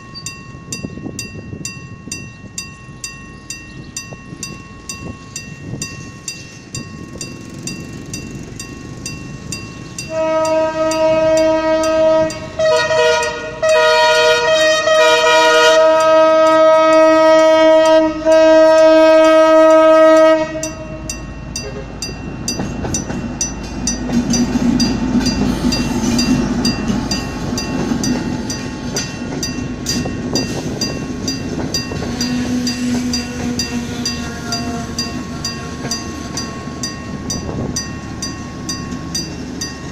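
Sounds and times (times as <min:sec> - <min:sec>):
train rumbling on track: 0:00.0 - 0:39.9
locomotive horn blasts: 0:10.1 - 0:21.1, 0:32.0 - 0:36.4.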